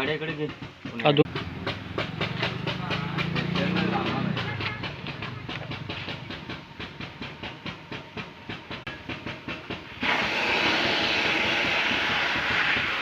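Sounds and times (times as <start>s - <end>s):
tractor engine chuffing: 0.0s - 13.0s.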